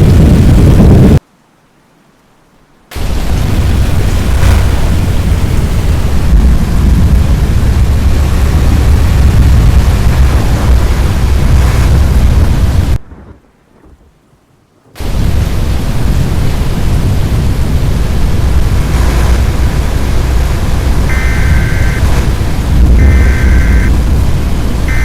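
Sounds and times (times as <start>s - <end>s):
heavy low rumble: 0.0s - 1.2s, 2.9s - 25.0s
storm wind on microphone: 0.0s - 1.2s, 2.9s - 25.0s
rain: 0.0s - 25.0s.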